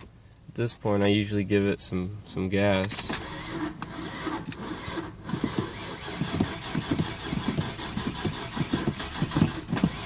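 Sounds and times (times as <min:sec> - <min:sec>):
starter cranking engine: 0:03.1 - 0:10.0.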